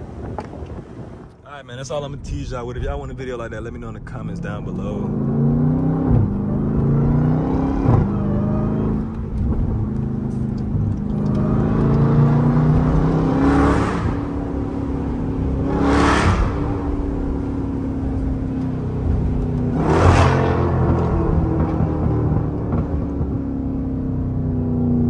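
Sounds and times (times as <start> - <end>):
car engine accelerating: 0.0 - 25.0
supercharger whine: 2.1 - 25.0
rushing whooshes: 11.4 - 17.4.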